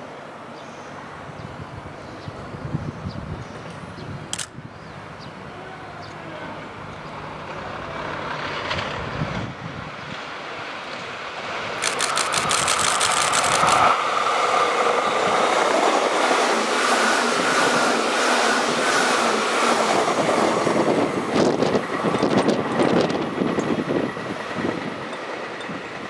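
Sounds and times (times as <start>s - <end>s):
electric train running hum: 0.0s - 26.0s
wheels clacking over rail joints: 11.8s - 14.0s.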